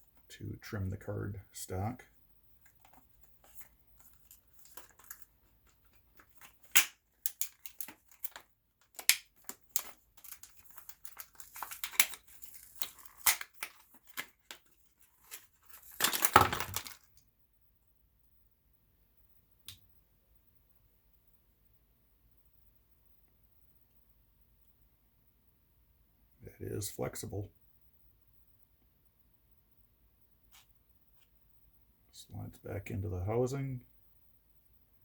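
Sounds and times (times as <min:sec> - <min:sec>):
cardboard packaging clicks and scrapes: 0:02.7 - 0:17.1
cardboard tearing: 0:03.4 - 0:17.0.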